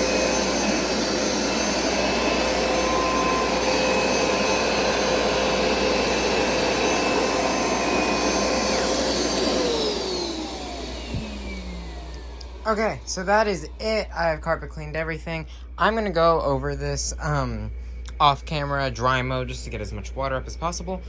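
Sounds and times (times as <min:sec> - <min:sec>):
carpet cleaner motor whine: 0:00.0 - 0:14.8.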